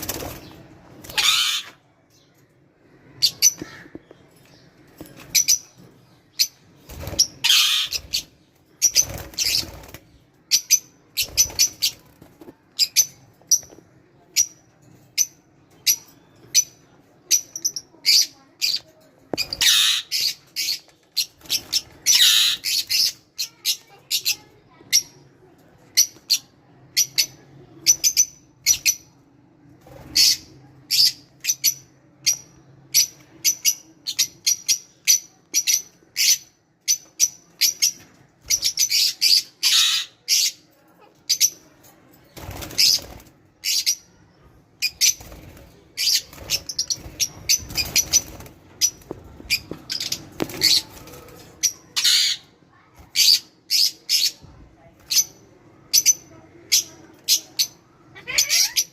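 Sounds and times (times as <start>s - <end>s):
birds chirping: 0.0s - 29.2s, 30.0s - 58.9s
bird squawks: 1.1s - 1.8s, 7.4s - 8.2s, 19.6s - 20.4s.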